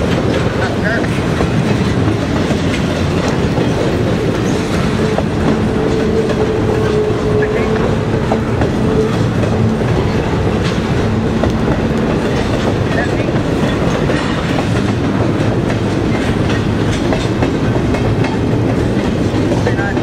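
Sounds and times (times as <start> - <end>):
freight train wheels on rails: 0.0 - 20.0.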